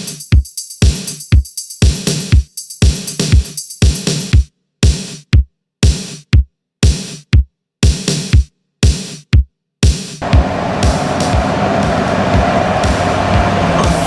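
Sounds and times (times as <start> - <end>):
electronic music with drum-machine beat: 0.0 - 14.0
steady rushing noise: 10.2 - 14.0.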